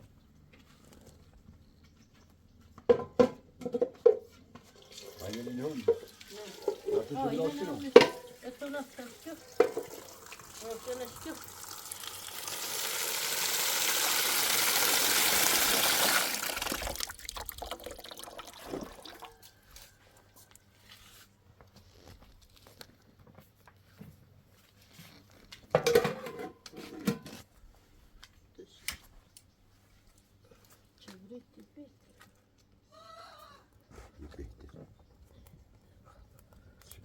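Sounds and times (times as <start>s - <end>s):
water gushing: 4.8s - 19.4s
small knocks: 9.6s - 10.0s.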